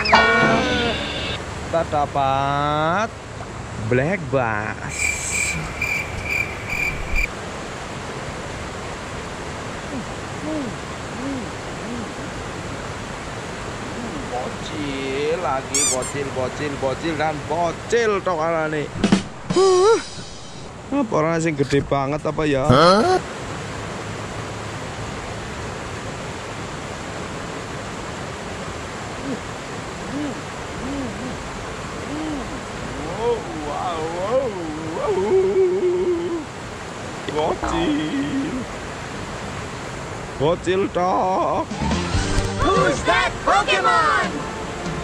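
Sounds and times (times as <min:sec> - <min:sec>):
insect chirping in pulses: 0:00.0 - 0:01.5, 0:04.9 - 0:07.3, 0:15.7 - 0:16.2
low hum: 0:00.0 - 0:01.7
low rise-and-fall tones: 0:00.0 - 0:02.0
fast-flowing shallow river: 0:03.1 - 0:21.6, 0:23.1 - 0:42.9
fast-flowing river rushing: 0:23.3 - 0:40.4.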